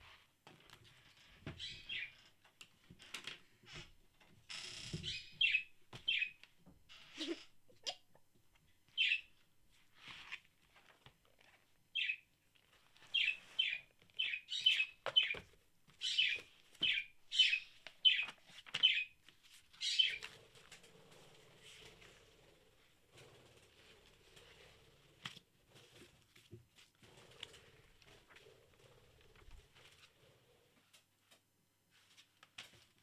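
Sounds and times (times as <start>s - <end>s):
bird chirping: 1.6s - 2.2s, 5.0s - 6.4s, 8.9s - 9.4s, 11.9s - 12.3s, 13.1s - 15.4s, 16.0s - 20.3s.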